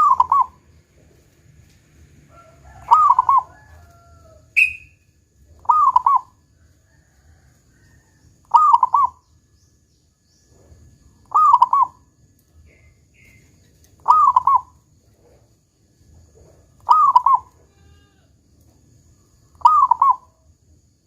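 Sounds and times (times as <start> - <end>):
dove cooing: 0.0 - 0.7, 2.3 - 3.9, 5.6 - 6.4, 8.5 - 9.2, 11.2 - 12.0, 14.0 - 15.4, 16.4 - 17.5, 19.6 - 20.3.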